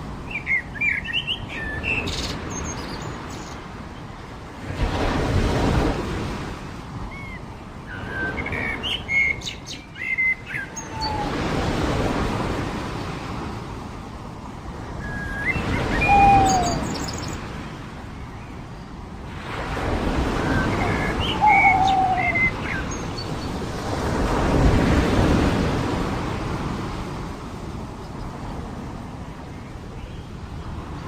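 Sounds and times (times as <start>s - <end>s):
waves washing onto a beach: 0.0s - 31.0s
birds chirping and whistling: 7.9s - 11.4s, 15.0s - 17.4s, 20.4s - 23.4s.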